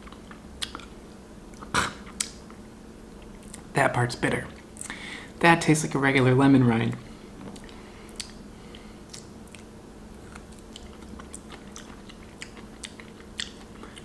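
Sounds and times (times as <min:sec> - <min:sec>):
person chewing crunchy rind: 0:00.0 - 0:02.4, 0:07.6 - 0:14.0
faint steady hum: 0:00.0 - 0:14.0.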